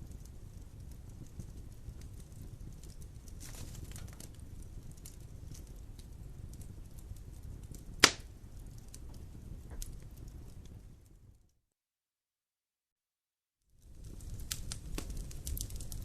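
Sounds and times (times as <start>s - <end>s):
fire rumbling: 0.0s - 11.5s, 13.7s - 16.0s
fire crackles: 0.0s - 11.6s, 13.7s - 16.0s
loud pop of fire: 7.9s - 8.4s.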